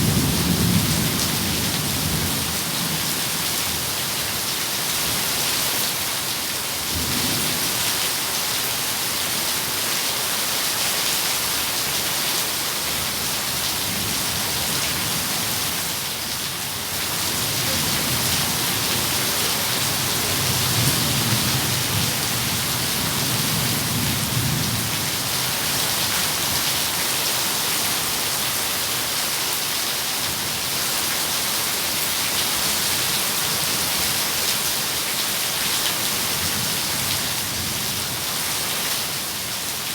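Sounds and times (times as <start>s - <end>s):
heavy rain falling: 0.0s - 39.9s
thunder rumbling: 17.0s - 24.9s.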